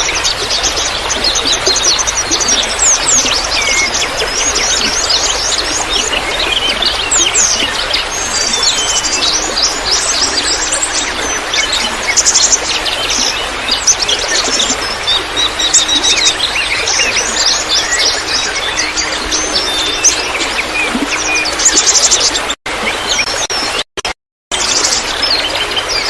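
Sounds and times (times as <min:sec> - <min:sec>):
small birds chirping and singing: 0:00.0 - 0:23.9, 0:24.6 - 0:26.0
trickling water: 0:00.0 - 0:26.0.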